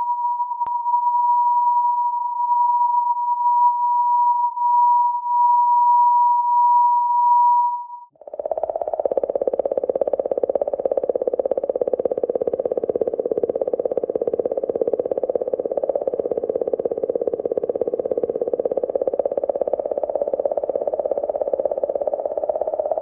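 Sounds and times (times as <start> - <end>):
buzzy train of rapid pulses: 8.1 - 23.0.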